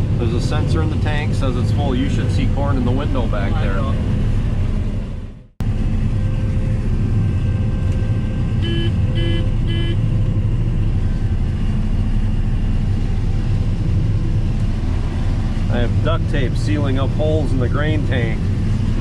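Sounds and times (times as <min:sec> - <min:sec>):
combine harvester running: 0:00.0 - 0:19.0.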